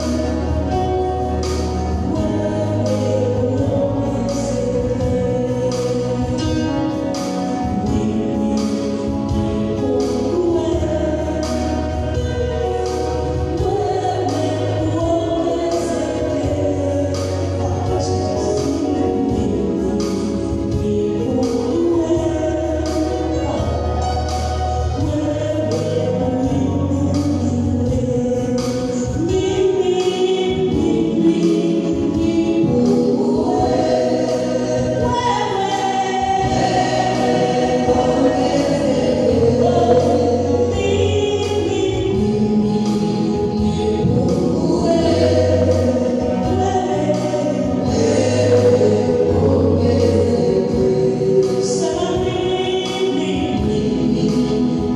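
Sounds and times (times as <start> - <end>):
band accompaniment with bass: 0.0 - 54.9
gospel choir singing: 0.0 - 54.9.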